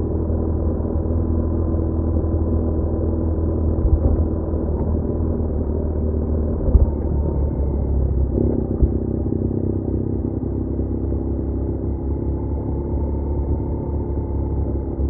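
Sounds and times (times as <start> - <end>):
motorcycle engine running: 6.7 - 15.0.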